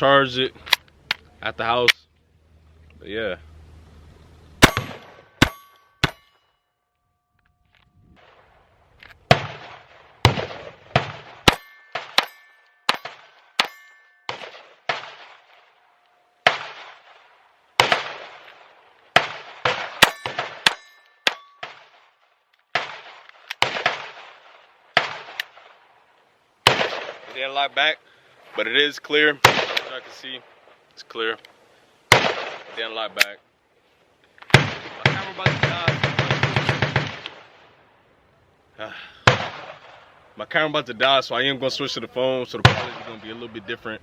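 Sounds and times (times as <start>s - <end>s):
pistol shots: 4.6s - 6.3s, 9.2s - 15.8s, 16.4s - 25.8s, 26.6s - 27.5s, 29.4s - 30.0s, 32.1s - 33.3s, 34.5s - 37.6s, 39.2s - 40.1s
metallic ringing: 4.6s - 8.0s, 11.4s - 14.9s, 20.0s - 22.0s.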